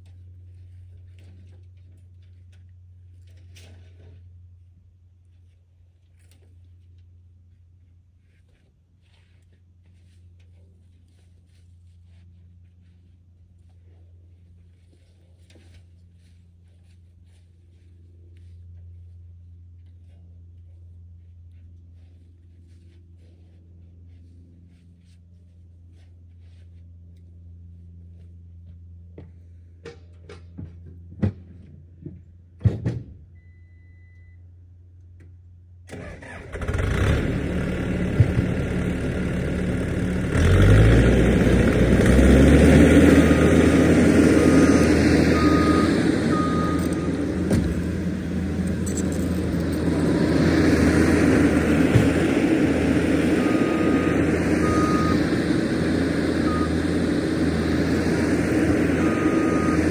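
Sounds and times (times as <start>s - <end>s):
heavy equipment diesel engine: 35.9s - 59.9s.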